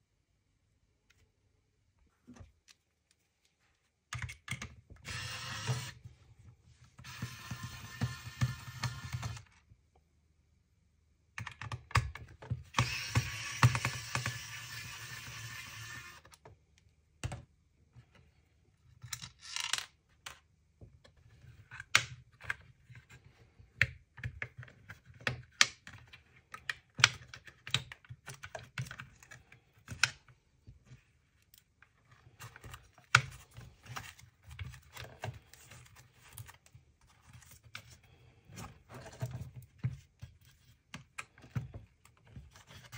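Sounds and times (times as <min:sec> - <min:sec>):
tools clicking on plastic device: 0:11.4 - 0:16.4.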